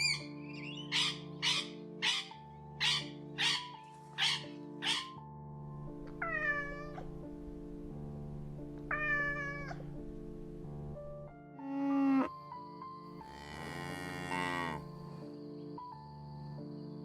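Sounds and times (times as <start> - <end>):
background music: 0.0 - 17.0
cat meowing: 4.2 - 5.2, 6.2 - 7.2, 8.9 - 10.0.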